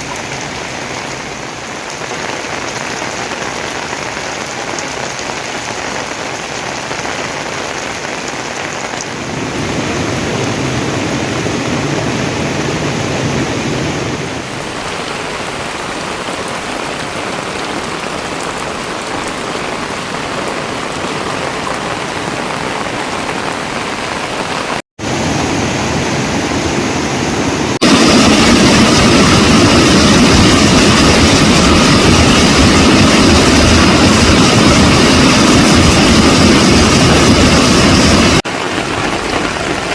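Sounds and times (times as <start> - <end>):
heavy rain falling: 0.0 - 39.9
loud steady rushing noise: 9.1 - 14.5, 25.0 - 39.9.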